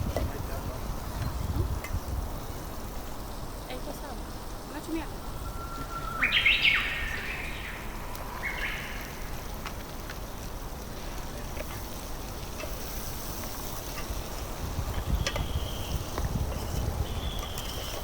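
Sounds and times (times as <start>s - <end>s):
low outdoor rumble: 0.0s - 18.0s
bird calling: 4.9s - 9.4s.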